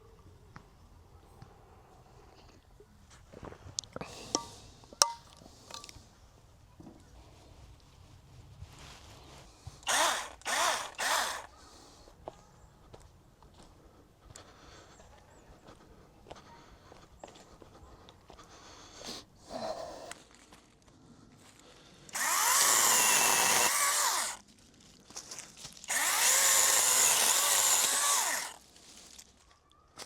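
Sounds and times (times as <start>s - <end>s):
power tool motor whine: 9.8s - 11.5s, 22.1s - 24.4s, 25.9s - 28.6s.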